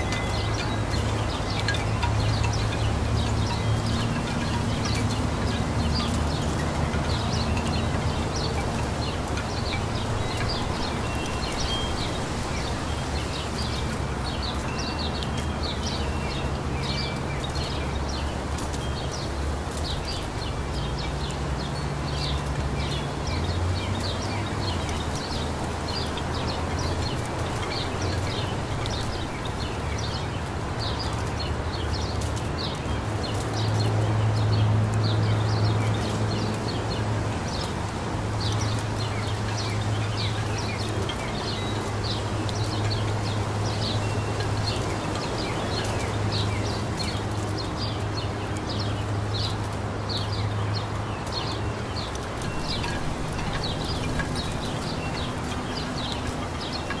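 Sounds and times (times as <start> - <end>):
small songbirds chirping: 0.0 - 57.0.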